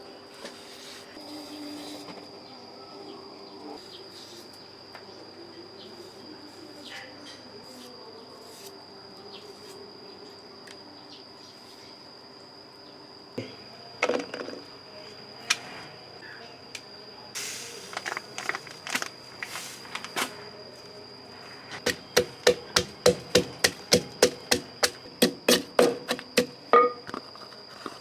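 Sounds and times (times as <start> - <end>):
high insect drone: 0.0 - 28.0
knife chopping on wooden board: 21.9 - 26.6.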